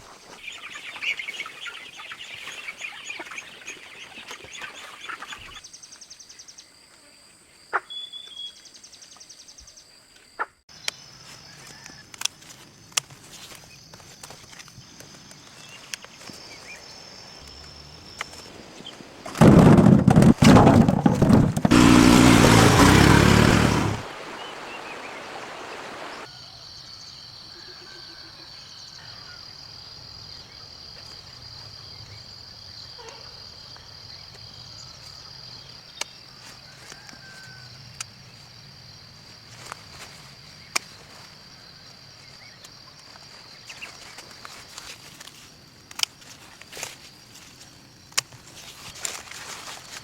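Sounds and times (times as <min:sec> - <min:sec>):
loud rushing burst: 0:19.4 - 0:24.0.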